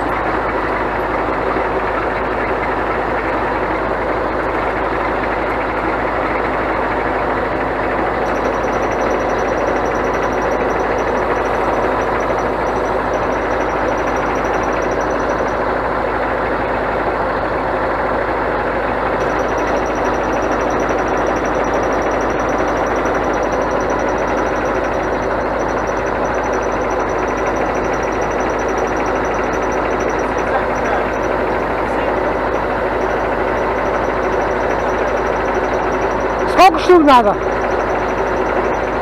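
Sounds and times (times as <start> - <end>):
truck diesel engine running: 0.0 - 39.0
high rapidly pulsing tone: 7.8 - 15.7, 19.2 - 39.0.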